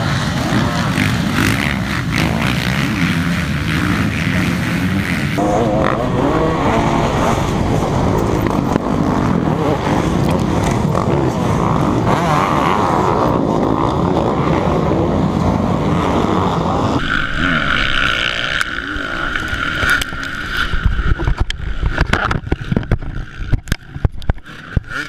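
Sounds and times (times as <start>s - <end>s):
dirt bike engine running hard: 0.0s - 25.0s
wind buffeting microphone: 5.4s - 25.0s.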